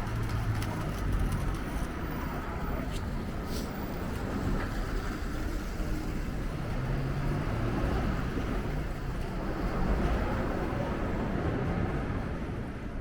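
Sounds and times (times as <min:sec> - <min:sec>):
city traffic hum: 0:00.0 - 0:13.0.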